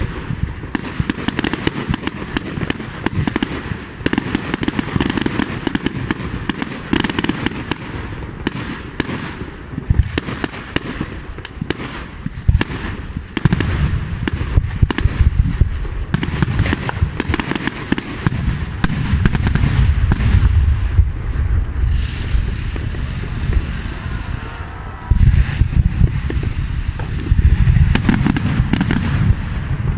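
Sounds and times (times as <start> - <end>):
deep fireworks booms: 0.0 - 29.9
fireworks cracks and bangs: 0.0 - 29.9.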